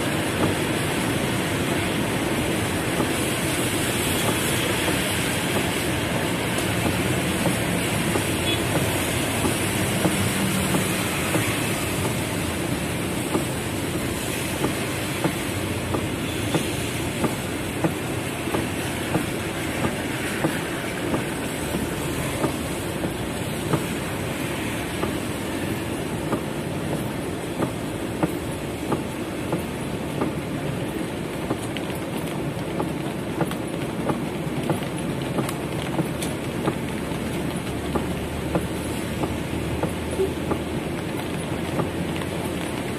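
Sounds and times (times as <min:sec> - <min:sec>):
heavy rain on car roof: 0:00.0 - 0:42.9
sharp regular taps: 0:13.2 - 0:24.0, 0:25.0 - 0:25.2, 0:26.2 - 0:30.4, 0:31.4 - 0:42.7.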